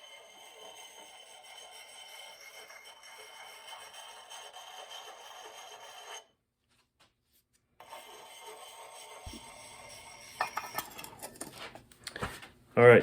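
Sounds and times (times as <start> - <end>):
sharpening stone scraping axe: 0.0 - 6.2, 7.8 - 11.6.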